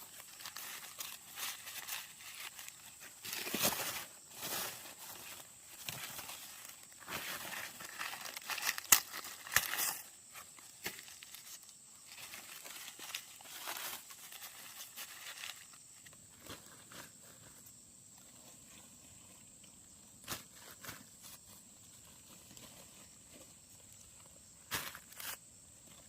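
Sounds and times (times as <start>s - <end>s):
dry plant material rustling: 0.0s - 17.6s.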